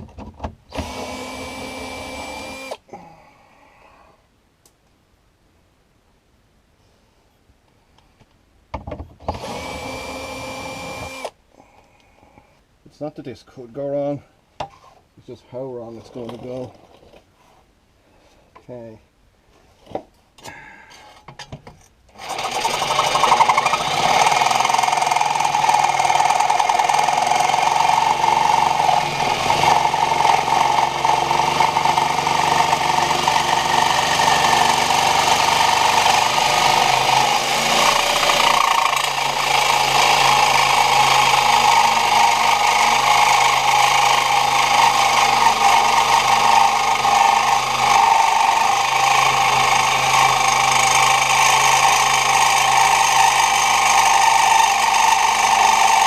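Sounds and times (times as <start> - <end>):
reciprocating saw cutting: 9.3 - 11.4, 22.2 - 56.0.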